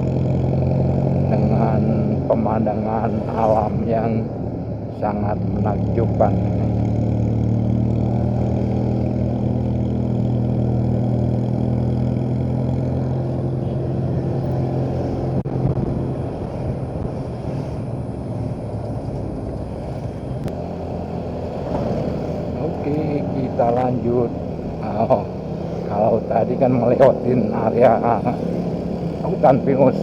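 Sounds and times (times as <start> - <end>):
motorcycle engine running: 0.0 - 30.0
road noise: 0.0 - 30.0
wind on microphone: 14.2 - 20.7.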